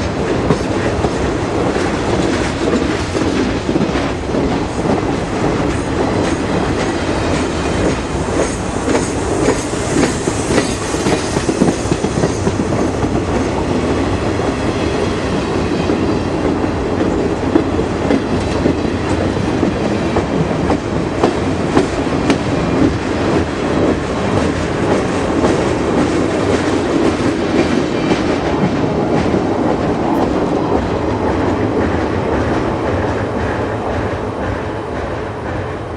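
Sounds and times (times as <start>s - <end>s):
train rumble: 0.0s - 35.9s
train wheels clacking over rail joints: 0.0s - 35.9s.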